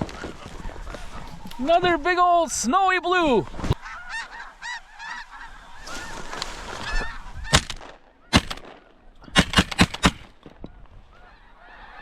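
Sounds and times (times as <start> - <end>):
geese honking: 0.0 - 9.2, 11.0 - 12.0
shotgun blasts: 7.5 - 10.4.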